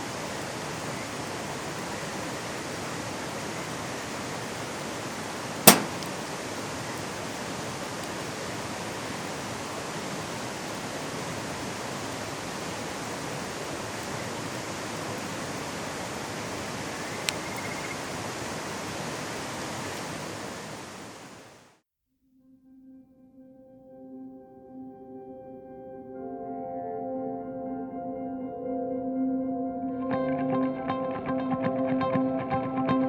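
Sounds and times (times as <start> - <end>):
stream rushing over rocks: 0.1 - 17.1, 18.0 - 21.4
sharp loud click: 5.7 - 6.2.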